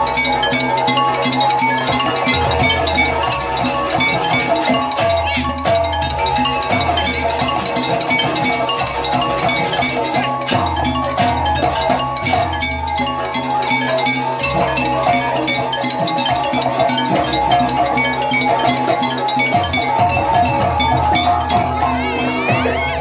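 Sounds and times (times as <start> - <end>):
drumming: 0.0 - 23.0
gamelan metallophones ringing melody: 0.0 - 23.0.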